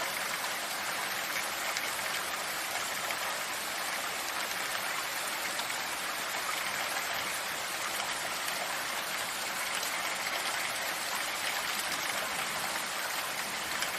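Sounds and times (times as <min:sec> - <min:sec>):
steady rain falling: 0:00.0 - 0:13.9.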